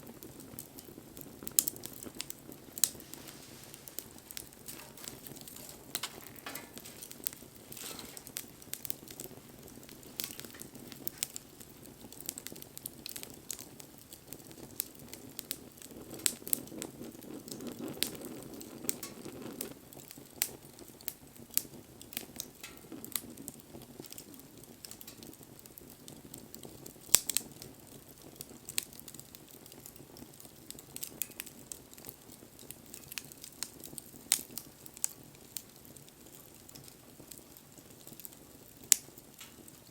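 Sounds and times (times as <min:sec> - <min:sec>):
low rush of flame: 0:00.0 - 0:25.4
bonfire crackling and popping: 0:00.0 - 0:39.9.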